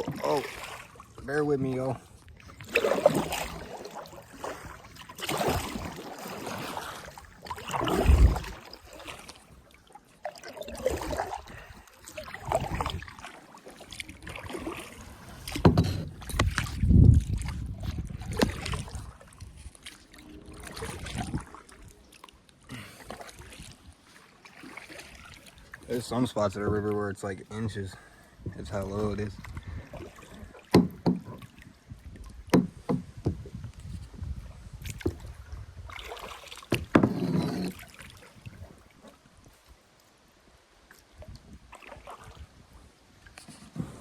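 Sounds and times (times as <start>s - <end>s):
kayak paddle splashing: 0.0s - 44.0s
sharp knocks: 30.7s - 31.4s, 32.5s - 33.4s.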